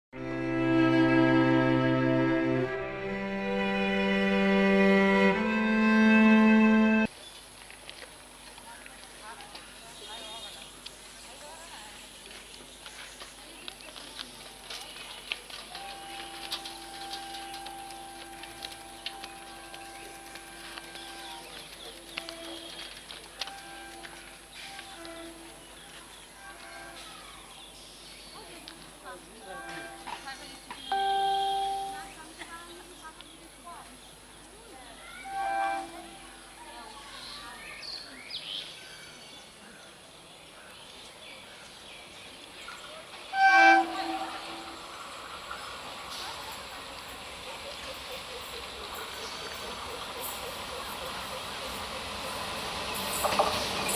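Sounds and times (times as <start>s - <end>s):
electric train hum: 0.2s - 7.1s, 15.5s - 27.3s, 28.8s - 32.4s, 35.2s - 37.0s, 43.1s - 53.9s
railway background noise: 0.2s - 53.9s.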